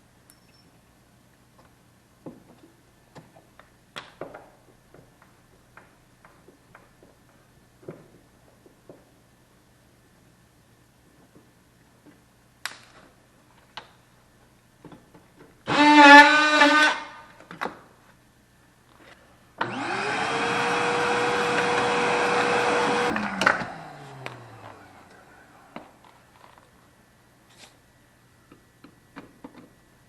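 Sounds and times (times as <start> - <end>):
electric drill running: 15.7 - 17.0, 19.6 - 25.3.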